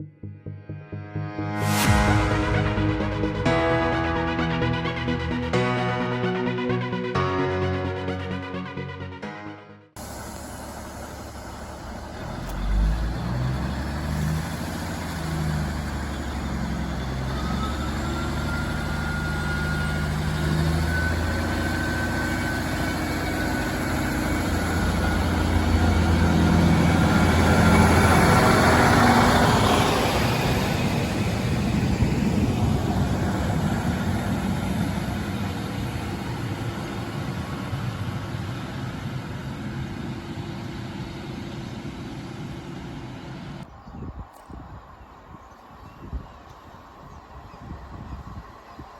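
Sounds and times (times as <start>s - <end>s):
diesel train engine throbbing: 0.0s - 43.7s.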